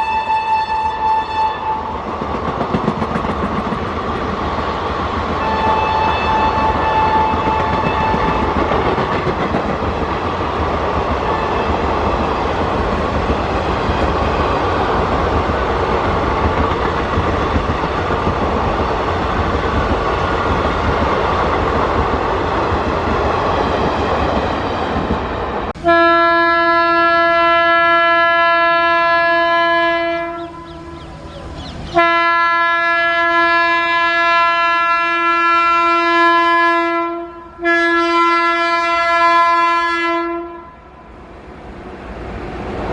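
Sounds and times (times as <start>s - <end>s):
locomotive horn blast: 0.0s - 2.0s, 5.4s - 8.7s, 11.2s - 12.2s, 25.8s - 41.1s
train wheel and coach noise: 0.0s - 42.9s.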